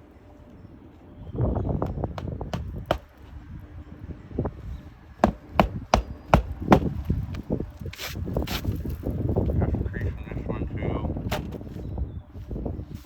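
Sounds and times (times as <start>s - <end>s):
hammer striking shingle roof: 1.8s - 3.2s, 5.2s - 7.1s
rough scraping and knocks: 1.8s - 3.3s, 5.2s - 7.2s.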